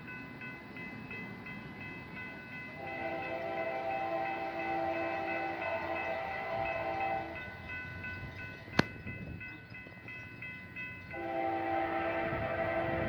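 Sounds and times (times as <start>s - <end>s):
locomotive air horn: 2.8s - 7.4s, 11.1s - 13.0s.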